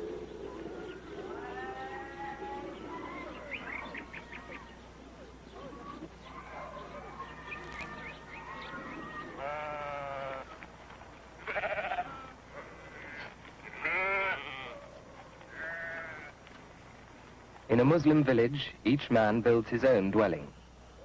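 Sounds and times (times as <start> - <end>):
small birds chirping: 0.0 - 18.5
livestock bleating: 1.3 - 3.6, 7.4 - 10.6, 11.4 - 14.9, 15.5 - 16.4.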